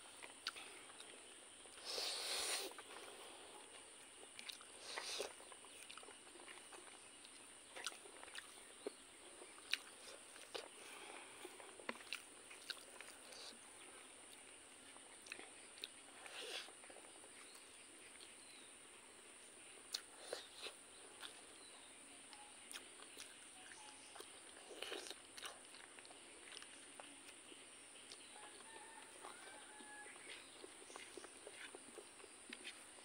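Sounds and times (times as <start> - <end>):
steady high hiss: 0.0 - 4.1
person chewing food: 0.1 - 33.0.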